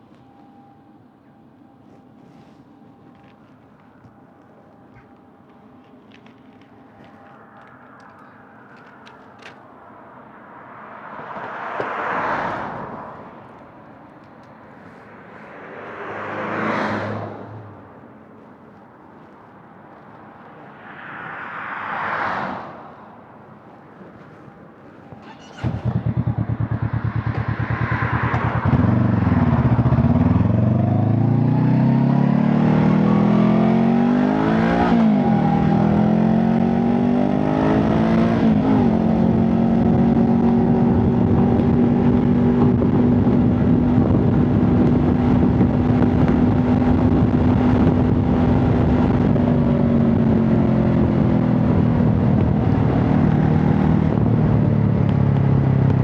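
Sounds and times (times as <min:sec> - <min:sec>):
motorcycle engine revving: 0:25.1 - 0:56.0.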